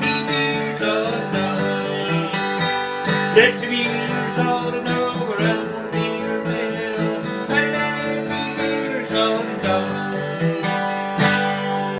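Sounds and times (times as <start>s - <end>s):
acoustic guitar playing: 0.0s - 11.9s.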